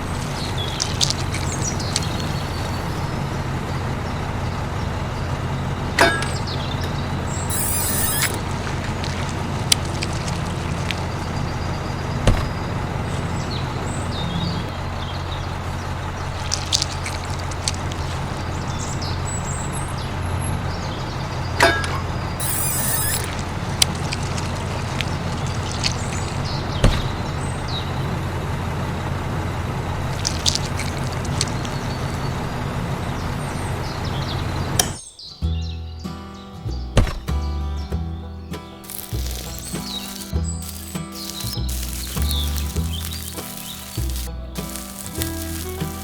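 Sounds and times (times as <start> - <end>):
small electric motor humming: 7.5 - 10.4, 38.9 - 46.0
hissing bursts: 38.8 - 46.0.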